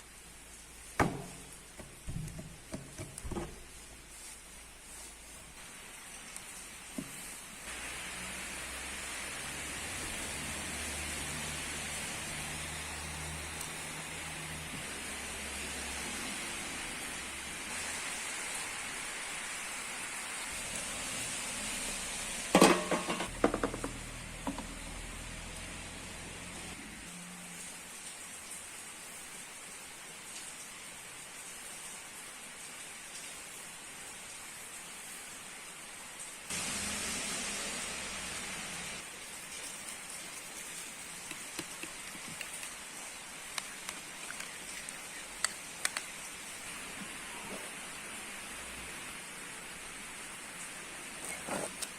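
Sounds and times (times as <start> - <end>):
steady rain hissing: 0.0 - 51.9
kitchenware clattering: 22.6 - 23.8.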